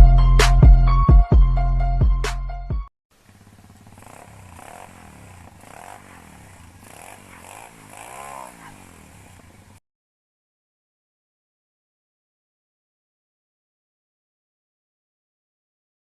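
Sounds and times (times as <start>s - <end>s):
music track: 0.0s - 2.8s
pit bike engine revving: 3.1s - 9.8s.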